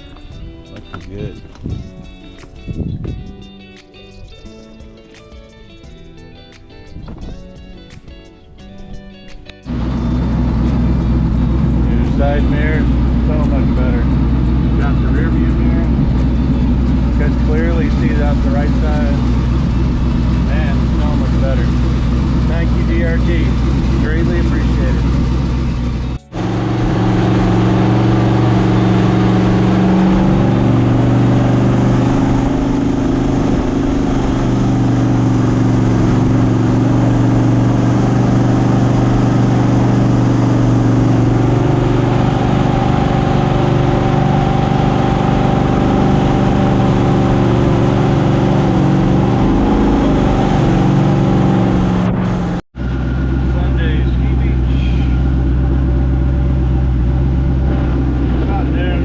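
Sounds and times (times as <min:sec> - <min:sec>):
jet boat engine running: 0:09.7 - 0:59.0.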